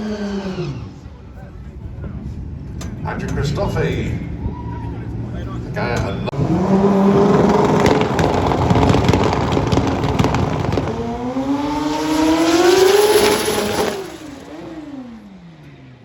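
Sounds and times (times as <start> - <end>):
motorcycle engine at full throttle: 6.0 - 15.9.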